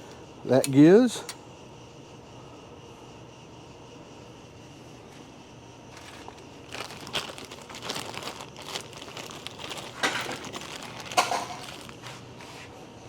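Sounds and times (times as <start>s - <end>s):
crinkling and rustling of parts: 5.9s - 12.7s
small metal parts clicking: 6.9s - 12.0s.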